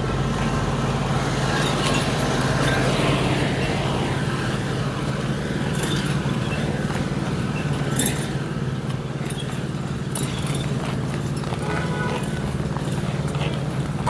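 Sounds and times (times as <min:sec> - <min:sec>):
vehicle engine running: 0:00.0 - 0:14.0
sharp metallic clinks: 0:04.5 - 0:14.0.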